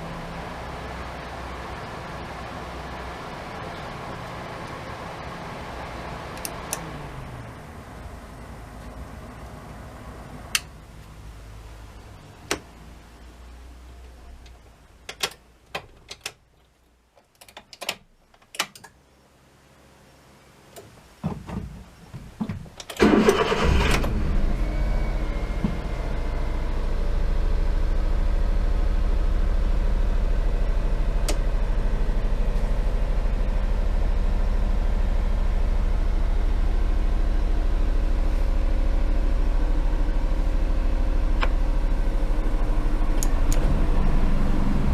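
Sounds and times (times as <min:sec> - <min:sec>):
engine cranking and idling: 0:22.8 - 0:27.5.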